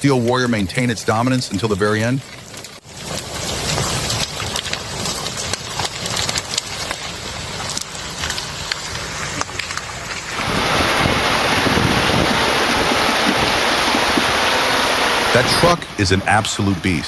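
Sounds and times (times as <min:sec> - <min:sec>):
sharp cracks: 0:00.3 - 0:12.3
wind noise on microphone: 0:10.3 - 0:16.2
loud steady rushing noise: 0:10.3 - 0:17.0.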